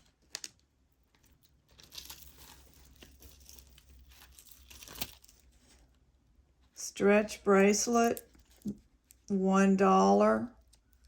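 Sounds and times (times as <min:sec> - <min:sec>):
jewelry rustling and clicking: 0:00.0 - 0:09.4, 0:10.5 - 0:11.0.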